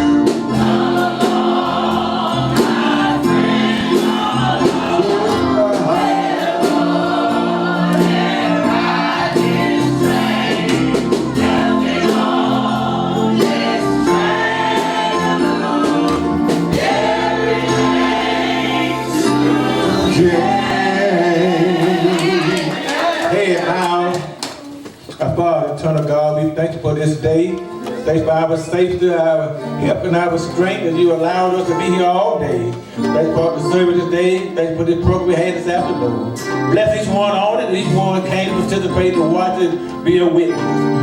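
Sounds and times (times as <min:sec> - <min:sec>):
choir and congregation singing: 0:00.0 - 0:24.0
sustained instrumental chords: 0:00.1 - 0:22.6.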